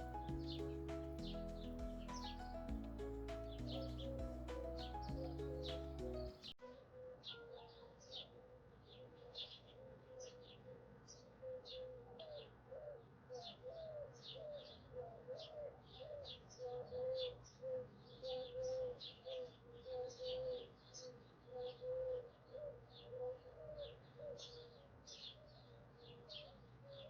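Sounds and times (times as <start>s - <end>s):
birds chirping: 0.0s - 6.6s.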